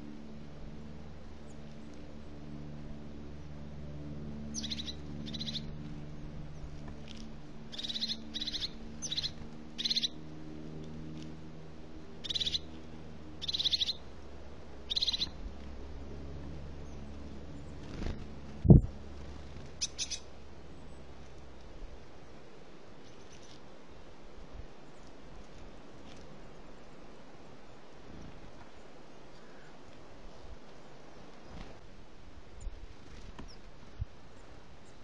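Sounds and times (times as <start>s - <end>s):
low steady hum: 0.0s - 35.0s
bird rattling calls: 19.8s - 20.2s.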